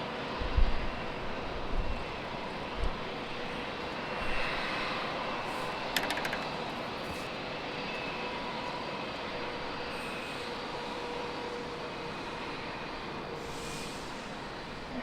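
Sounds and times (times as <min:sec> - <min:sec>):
jet engines running: 0:00.2 - 0:14.9
rattle of clicks: 0:06.0 - 0:06.6.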